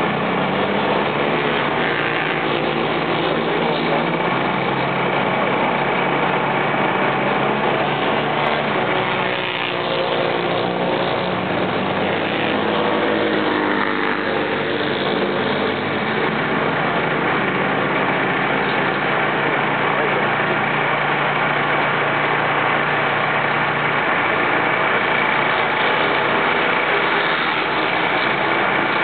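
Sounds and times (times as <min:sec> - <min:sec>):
motorcycle engines running: 0:00.0 - 0:29.0.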